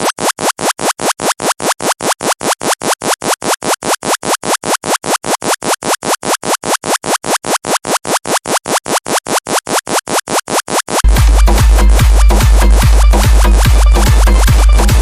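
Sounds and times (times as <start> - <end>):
loud buzzing electronic pulses: 3.8 - 15.0.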